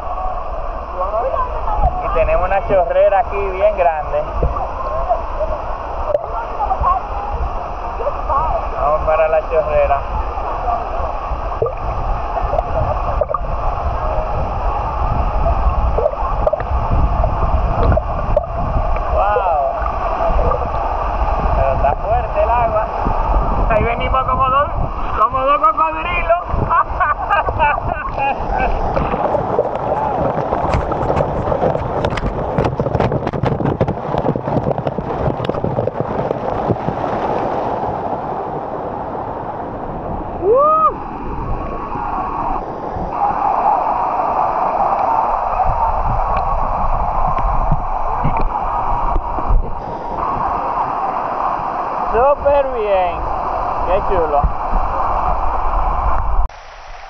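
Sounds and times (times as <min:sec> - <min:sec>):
splashing gurgling water: 0:00.0 - 0:57.0
sharp crackles and knocks: 0:29.0 - 0:37.3, 0:47.3 - 0:49.8.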